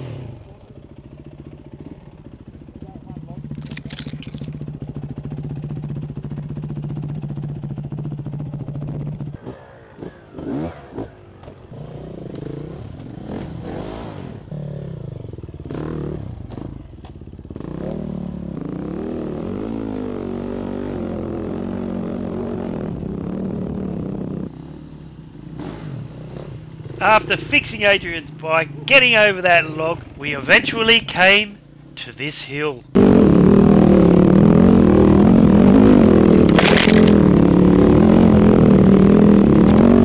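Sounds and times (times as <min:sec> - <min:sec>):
dirt bike engine revving: 0:00.0 - 0:00.4, 0:09.4 - 0:16.8, 0:17.5 - 0:24.8, 0:25.4 - 0:31.6, 0:32.4 - 0:40.0.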